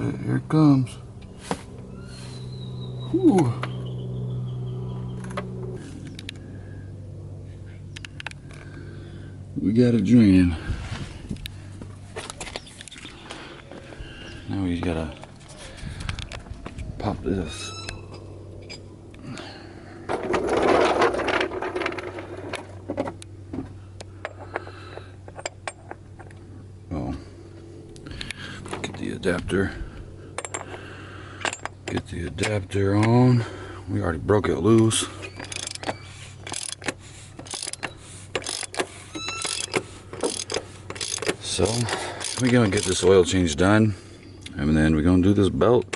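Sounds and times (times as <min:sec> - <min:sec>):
metallic clicks of tools: 0:34.8 - 0:43.1
ratchet wrench clicking: 0:35.4 - 0:43.1.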